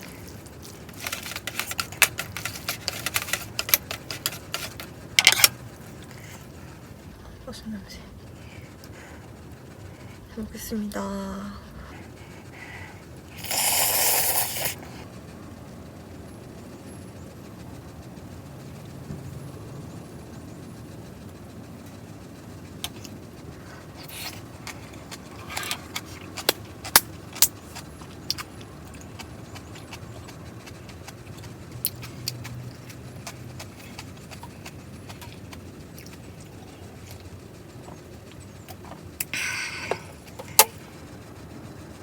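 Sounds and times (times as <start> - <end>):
utensils clicking on dishes: 0.6 - 5.6.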